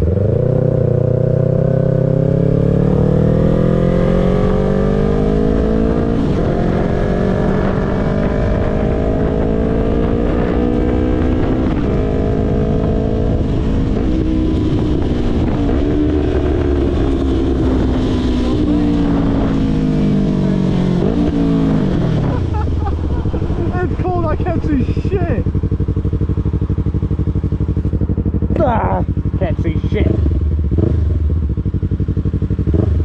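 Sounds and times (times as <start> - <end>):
wind rush on microphone: 5.5 - 28.6.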